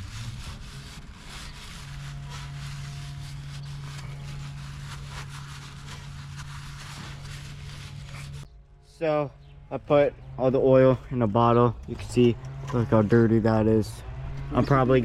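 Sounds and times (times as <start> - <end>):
paper towel wiping: 0.0 - 8.5.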